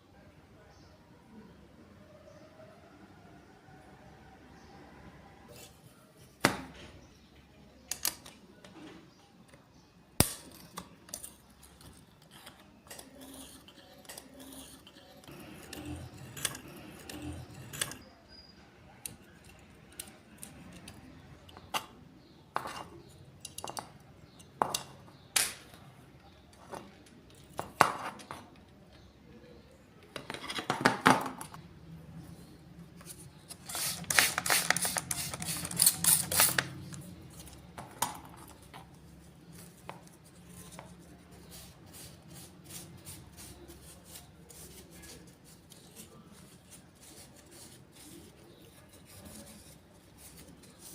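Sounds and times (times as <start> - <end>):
metal tools clicking and clinking: 10.3 - 18.1.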